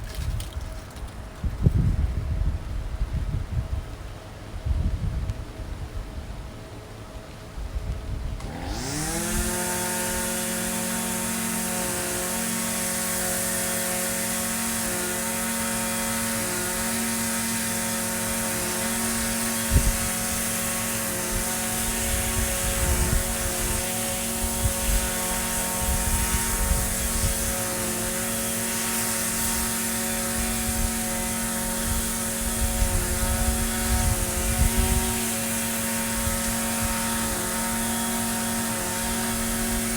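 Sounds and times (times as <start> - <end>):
string trimmer engine revving: 8.4 - 39.9.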